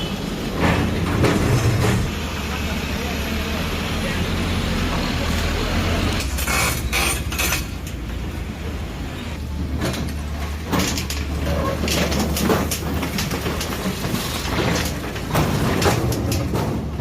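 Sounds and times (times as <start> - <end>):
heavy machinery engine humming: 0.0 - 17.0
knocks and clatter: 0.5 - 2.2, 9.4 - 17.0.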